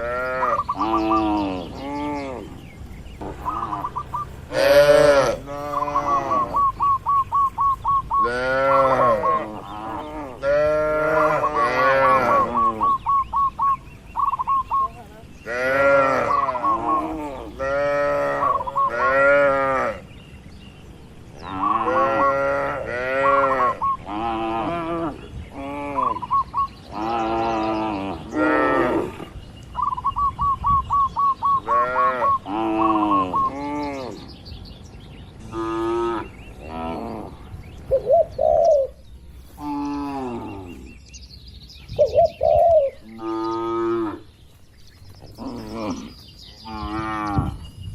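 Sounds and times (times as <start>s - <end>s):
bird chirping trill: 0.0s - 47.9s
cattle mooing: 4.5s - 6.8s, 8.2s - 13.0s, 15.5s - 20.0s, 21.5s - 26.2s.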